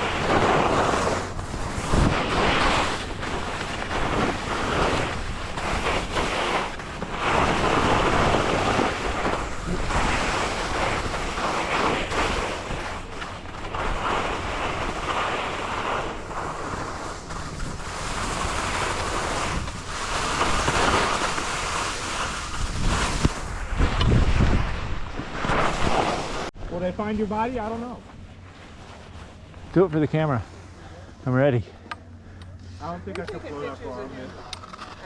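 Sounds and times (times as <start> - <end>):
skis scraping on packed snow: 0.0 - 31.7.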